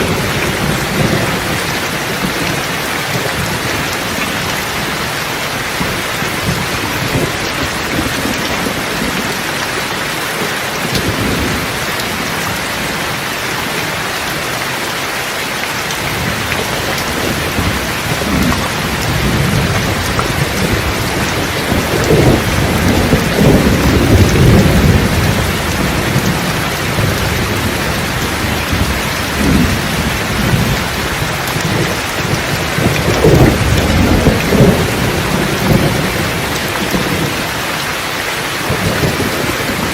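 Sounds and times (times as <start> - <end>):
rolling thunder: 0.0 - 9.6, 15.9 - 37.6
steady rain: 0.0 - 39.9.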